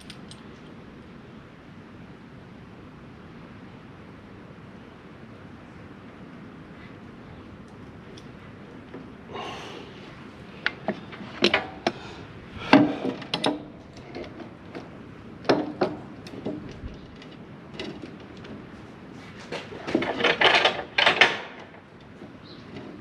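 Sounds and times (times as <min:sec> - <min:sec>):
metal tools knocking and clanking: 0:19.8 - 0:21.7.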